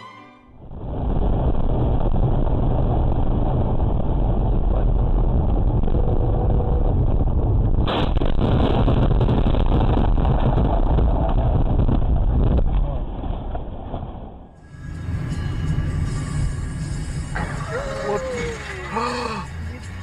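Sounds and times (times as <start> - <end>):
car road and engine noise: 14.5 - 20.0.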